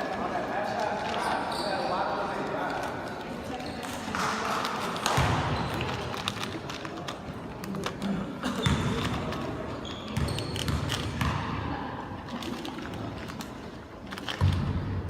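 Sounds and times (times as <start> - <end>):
crowd murmur: 0.0 - 14.4
shoe squeaks: 1.2 - 2.4, 3.5 - 4.3, 5.2 - 6.1, 8.5 - 11.3
basketball bouncing on floor: 5.0 - 5.8, 8.6 - 9.2, 10.1 - 11.6, 14.4 - 14.9.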